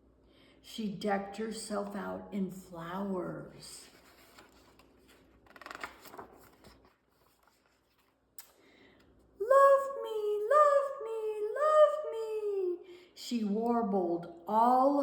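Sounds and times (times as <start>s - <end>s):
paper rustling: 3.7s - 8.4s
woman singing sliding notes: 9.4s - 12.8s.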